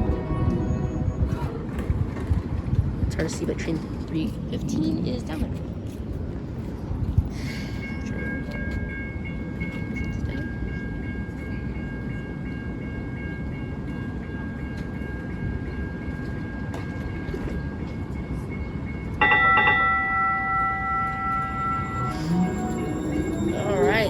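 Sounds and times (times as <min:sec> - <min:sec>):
light rail train rumbling: 0:00.0 - 0:24.0
pulsing bell ringing: 0:07.8 - 0:24.0
high-pitched whine: 0:20.6 - 0:24.0.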